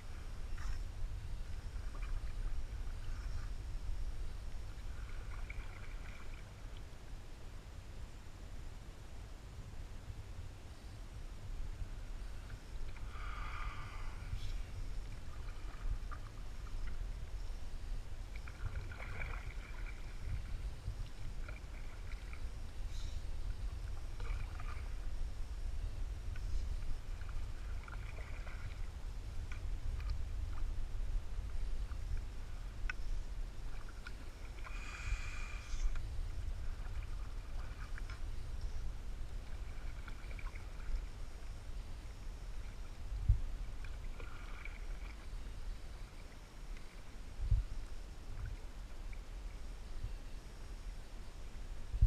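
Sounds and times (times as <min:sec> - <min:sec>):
paddle splashes and drips: 0:01.8 - 0:03.4, 0:04.7 - 0:06.9, 0:15.0 - 0:17.3, 0:18.2 - 0:22.5, 0:23.6 - 0:25.2, 0:26.3 - 0:30.7, 0:33.6 - 0:35.2, 0:35.8 - 0:41.5, 0:43.8 - 0:45.5.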